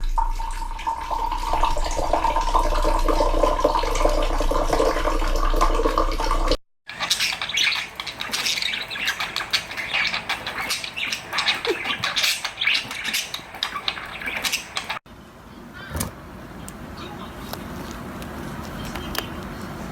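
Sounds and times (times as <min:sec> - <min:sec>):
parrot chirping and squawking: 0:06.9 - 0:15.0.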